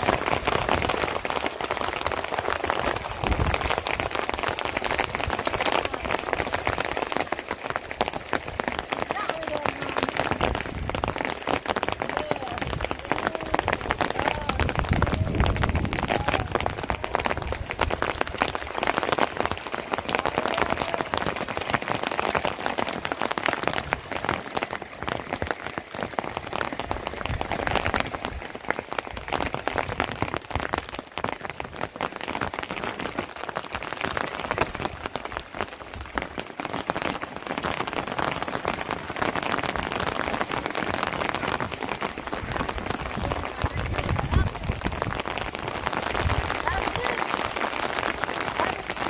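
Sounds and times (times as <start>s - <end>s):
steady rain falling: 0.0s - 49.0s.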